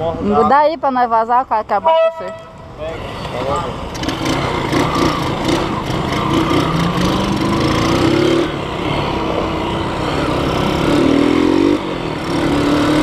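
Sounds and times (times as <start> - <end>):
motorcycle engine revving: 3.4 - 13.0.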